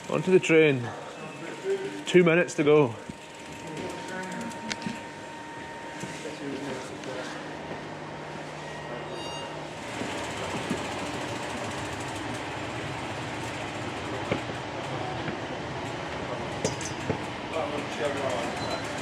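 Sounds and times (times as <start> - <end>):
train running noise: 9.7 - 19.0.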